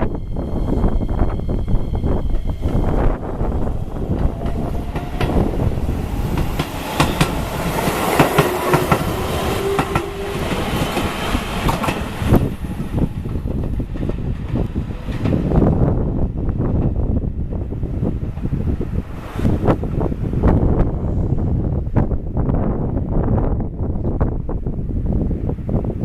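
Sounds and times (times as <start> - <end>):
electric train rumbling past: 0.0 - 24.2
train wheels clacking over rail joints: 4.1 - 12.5.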